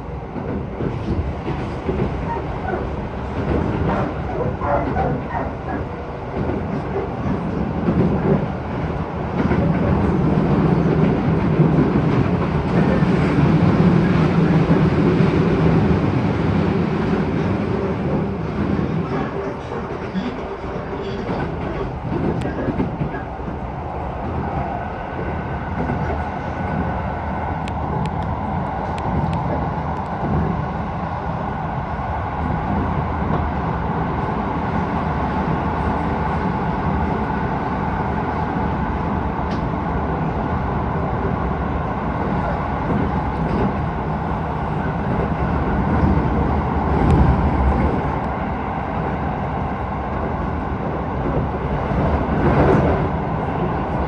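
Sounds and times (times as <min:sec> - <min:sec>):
wheels rumbling on rails: 0:00.0 - 0:54.0.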